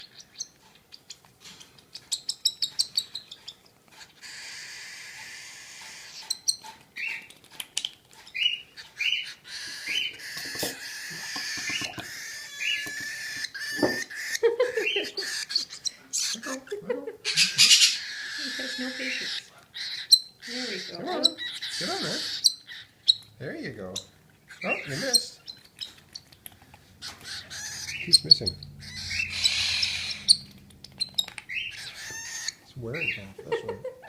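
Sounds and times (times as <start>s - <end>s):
cockatiel chick chirping: 0.0s - 33.9s
rising begging calls: 1.9s - 7.3s, 8.4s - 33.6s
bird squawks: 8.4s - 16.6s, 17.2s - 23.2s, 23.9s - 26.0s, 27.0s - 33.4s.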